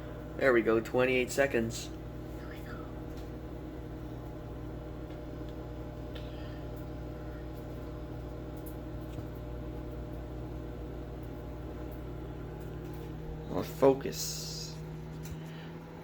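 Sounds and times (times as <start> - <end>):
microwave humming: 0.0 - 16.0.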